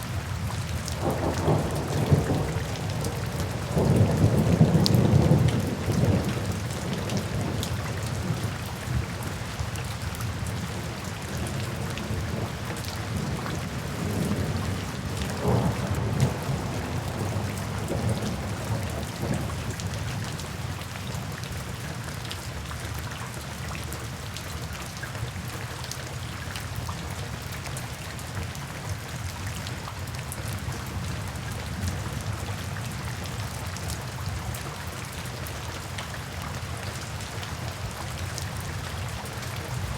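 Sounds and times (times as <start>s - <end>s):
steady rain: 0.0s - 39.9s
low rolling thunder: 0.7s - 9.2s, 11.3s - 20.4s.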